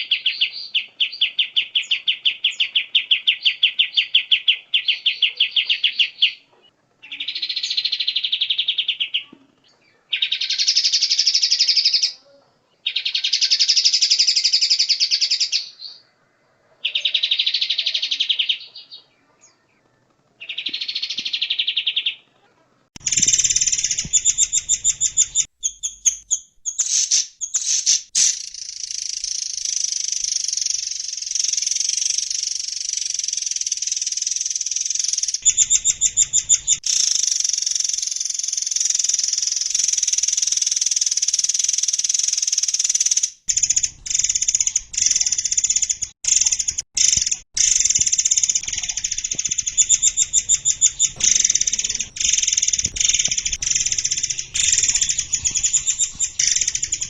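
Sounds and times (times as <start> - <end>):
bird giving sharp notes: 23.0 - 57.0
songbird trilling: 23.0 - 57.0.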